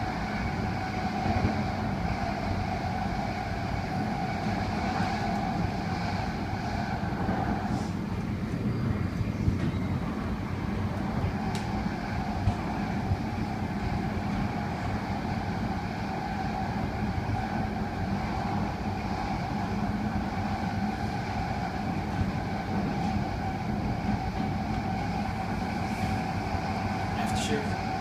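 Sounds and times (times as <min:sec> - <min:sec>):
constant hum: 0:00.0 - 0:28.0
train running rumble: 0:00.0 - 0:28.0.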